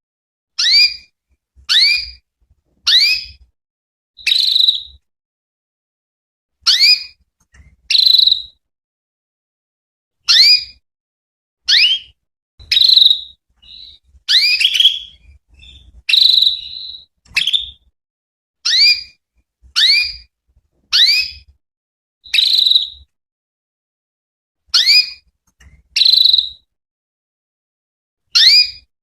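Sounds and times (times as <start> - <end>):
canary chirping: 0.6 - 1.1, 1.7 - 2.2, 2.8 - 3.4, 4.2 - 5.0, 6.7 - 8.6, 10.3 - 10.8, 11.7 - 17.9, 18.6 - 19.2, 19.8 - 20.3, 20.9 - 21.5, 22.2 - 23.1, 24.7 - 26.7, 28.4 - 28.9.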